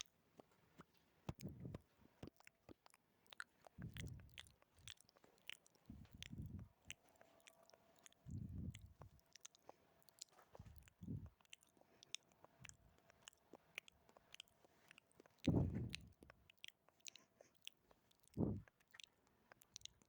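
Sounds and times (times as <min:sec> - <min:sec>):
wet mouth clicks and smacks: 0:00.4 - 0:20.0
dull low thuds: 0:15.5 - 0:16.1, 0:18.4 - 0:18.7.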